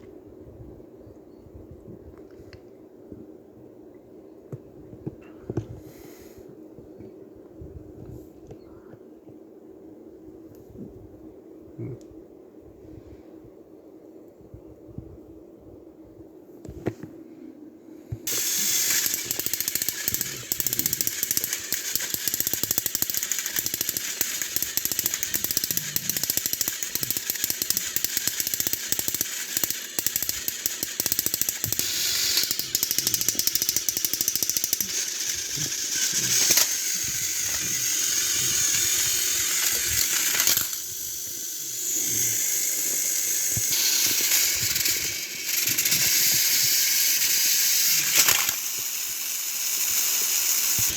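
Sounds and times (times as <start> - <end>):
toy train motors rattling: 18.2 - 50.9.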